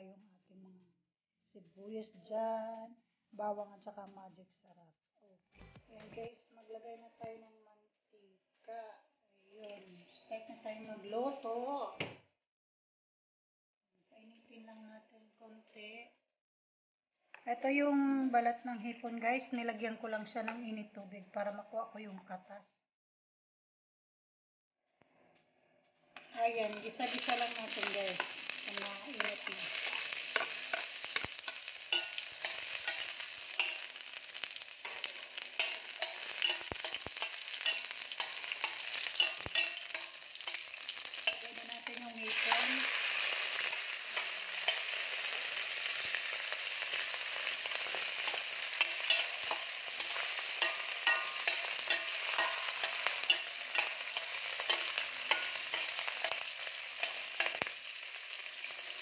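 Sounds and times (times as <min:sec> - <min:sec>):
food sizzling in oil: 0:26.1 - 0:59.0
metal spatula scraping pan: 0:26.2 - 0:46.3, 0:47.0 - 0:57.7.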